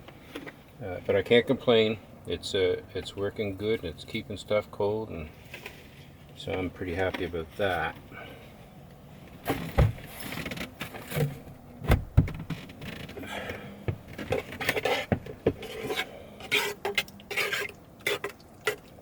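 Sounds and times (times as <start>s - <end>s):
kitchen items scraping and rubbing: 14.2s - 18.8s.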